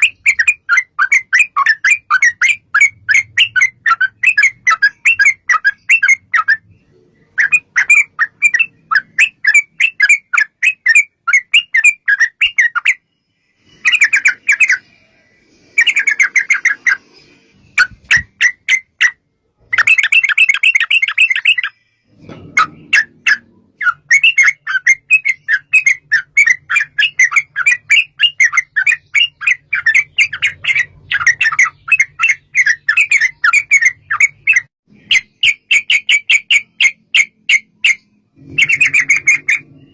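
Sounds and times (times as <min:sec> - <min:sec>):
birds chattering song: 0:00.0 - 0:39.9.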